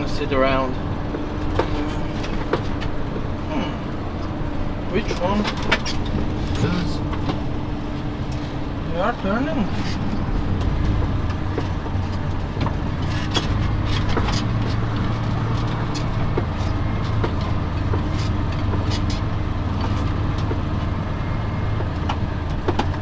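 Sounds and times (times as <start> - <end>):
vehicle engine running: 0.0 - 23.0
light clicks and rattles: 9.2 - 21.0.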